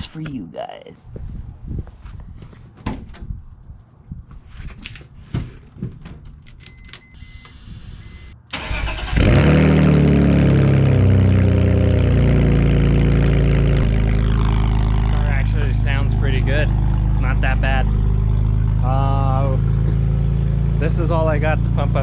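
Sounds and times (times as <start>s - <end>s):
car engine starting and idling: 6.4s - 22.0s.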